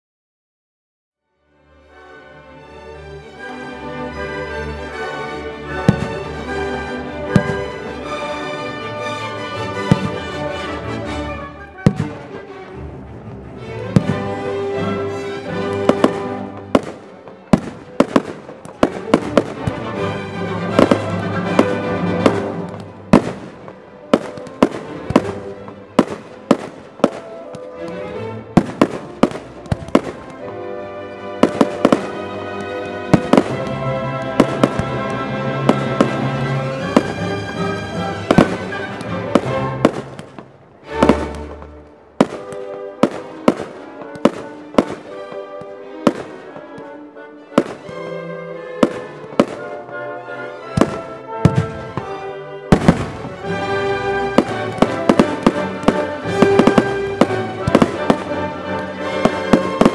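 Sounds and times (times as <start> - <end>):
music playing: 1.4 - 59.9
fireworks bangs: 5.8 - 6.3, 7.2 - 7.8, 9.8 - 10.3, 11.8 - 12.4, 13.9 - 14.4, 15.6 - 27.8, 28.5 - 30.7, 31.3 - 47.0, 47.6 - 48.0, 48.8 - 50.0, 50.7 - 59.9.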